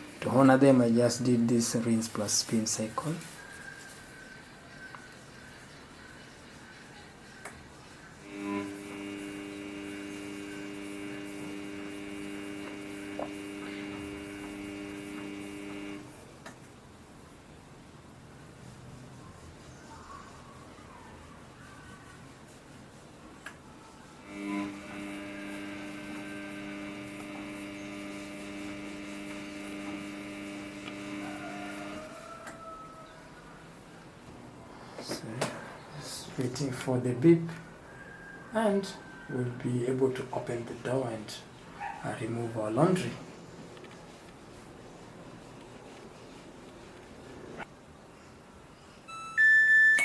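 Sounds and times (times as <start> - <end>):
washing machine electric hum: 0.0 - 2.9, 8.2 - 16.3, 24.0 - 32.2.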